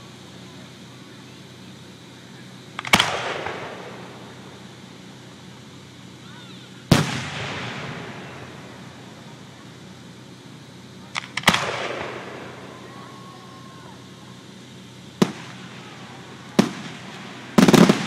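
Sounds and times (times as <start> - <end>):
small fireworks cracks: 0.0 - 18.0
fireworks booming: 2.4 - 18.0.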